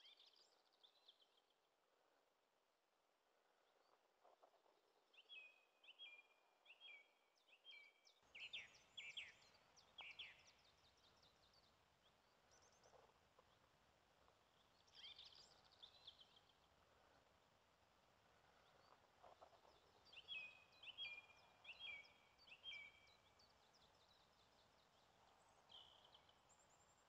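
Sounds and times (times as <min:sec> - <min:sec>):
songbirds chirping: 0:00.0 - 0:27.0.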